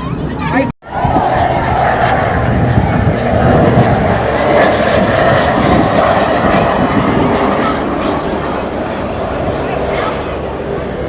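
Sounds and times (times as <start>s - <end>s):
airplane engines running: 0.0s - 11.0s.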